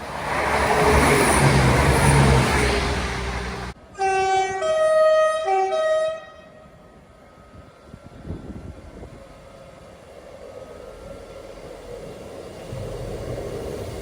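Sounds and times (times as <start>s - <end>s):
train running: 0.0s - 14.0s
two-tone train horn: 3.9s - 6.9s.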